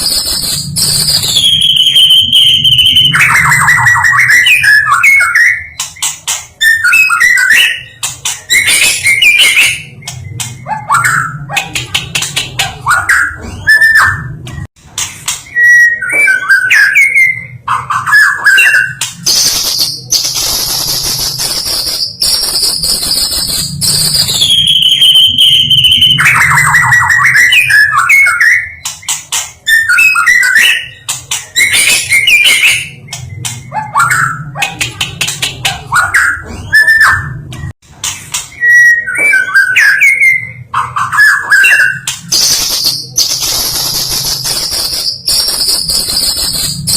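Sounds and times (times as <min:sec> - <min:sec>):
bird singing whistled phrases: 0:38.5 - 0:46.9.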